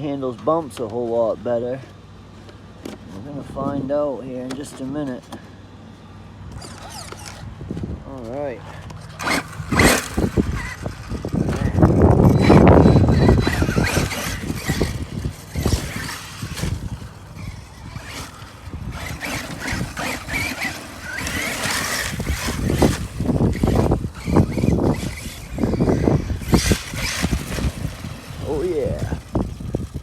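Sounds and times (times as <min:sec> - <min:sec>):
tyres running over dirt: 0:00.0 - 0:30.0
electric motor revving: 0:06.5 - 0:07.7, 0:08.6 - 0:30.0.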